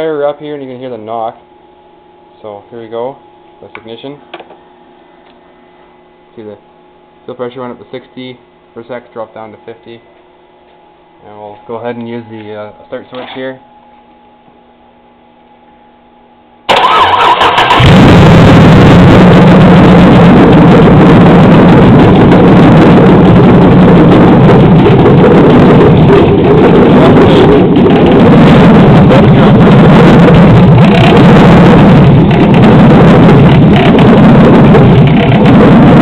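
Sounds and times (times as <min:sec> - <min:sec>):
truck engine cranking and running: 0:16.7 - 0:36.0
engine knocking: 0:23.2 - 0:36.0.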